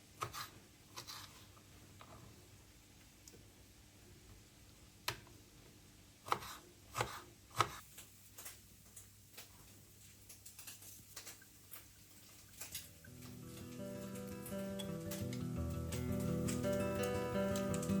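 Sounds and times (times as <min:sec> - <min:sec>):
gentle background music: 0:13.0 - 0:18.0.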